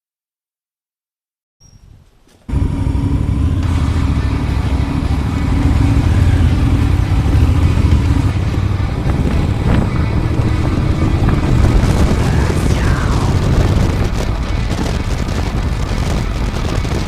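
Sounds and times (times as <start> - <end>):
motorcycle engine running: 2.5 - 17.0.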